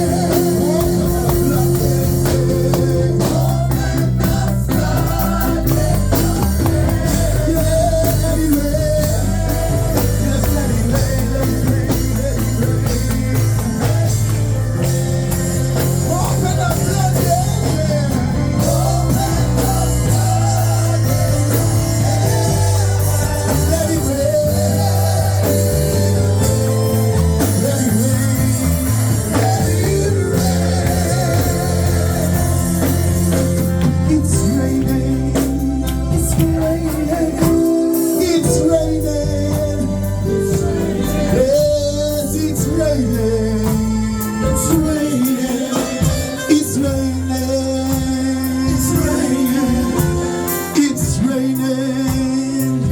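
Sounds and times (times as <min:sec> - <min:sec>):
band with bass and guitar: 0:00.0 - 0:52.9.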